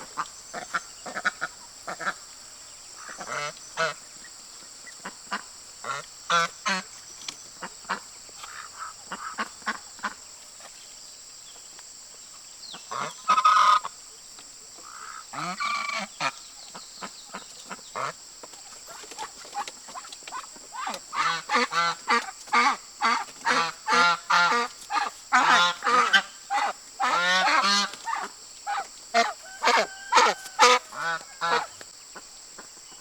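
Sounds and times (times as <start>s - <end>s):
steady high-pitched hiss: 0.0s - 33.0s
waterfowl honking: 12.9s - 13.9s, 20.0s - 31.8s.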